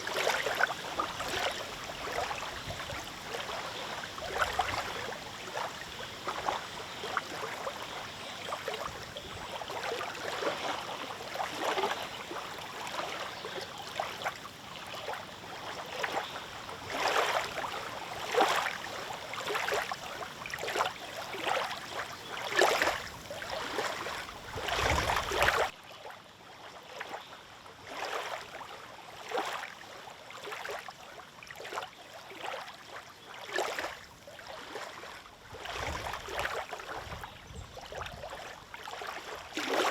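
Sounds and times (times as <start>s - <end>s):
waves lapping on a lake: 0.0s - 39.9s
wind rumble on microphone: 0.8s - 7.0s, 22.8s - 25.7s, 35.4s - 38.4s.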